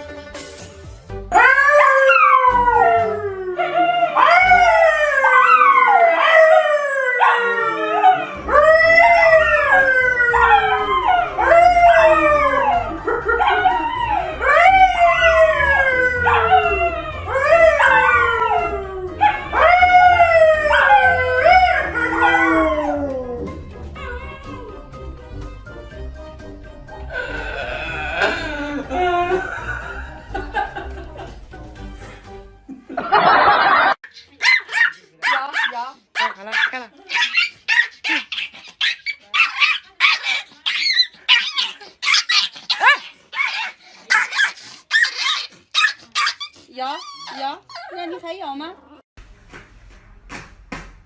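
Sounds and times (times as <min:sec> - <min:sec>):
dog howling: 0:01.3 - 0:24.9.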